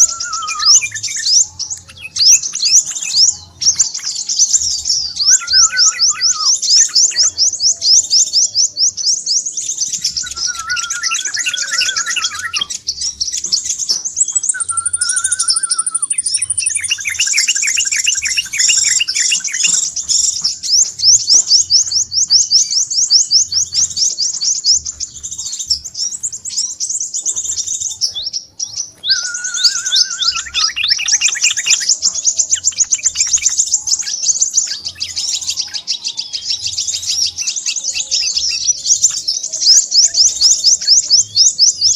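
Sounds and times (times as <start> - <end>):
sunbird twittering trills: 0.0 - 41.9
sunbird warbled phrases: 10.0 - 12.7, 28.4 - 38.8.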